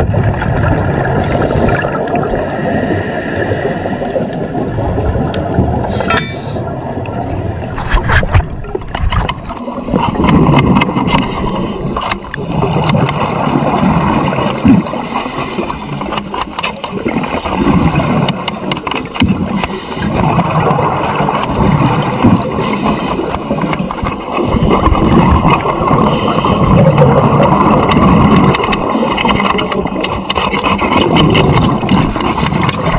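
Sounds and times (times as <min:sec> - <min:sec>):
exhaled bubbles rumbling: 0:00.0 - 0:32.9
regulator inhale hiss: 0:02.4 - 0:04.3, 0:11.2 - 0:12.0, 0:15.0 - 0:15.9, 0:19.6 - 0:20.1, 0:22.6 - 0:23.4, 0:26.1 - 0:26.7, 0:28.9 - 0:29.5.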